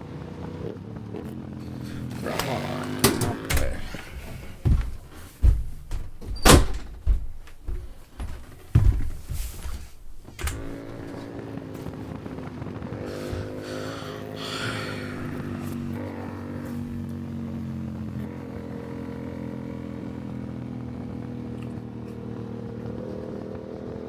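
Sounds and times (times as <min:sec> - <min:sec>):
sharp knocks and thumps: 0:01.7 - 0:11.2.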